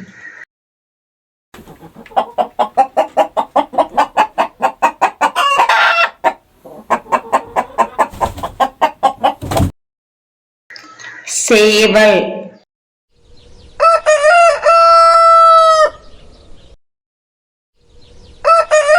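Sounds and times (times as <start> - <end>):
hen cackling: 1.6 - 9.4
hen clucking: 1.6 - 9.7.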